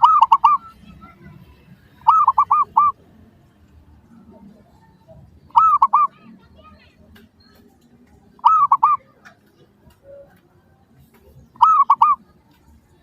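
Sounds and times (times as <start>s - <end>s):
dove cooing: 0.0s - 0.8s, 2.0s - 3.0s, 4.4s - 6.2s, 8.4s - 9.1s, 11.6s - 12.2s.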